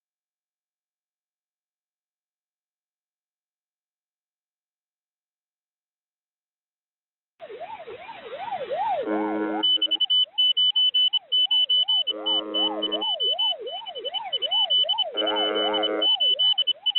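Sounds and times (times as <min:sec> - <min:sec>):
wailing siren tone over radio: 0:07.4 - 0:16.9
rapid high-pitched beeping: 0:08.8 - 0:16.9.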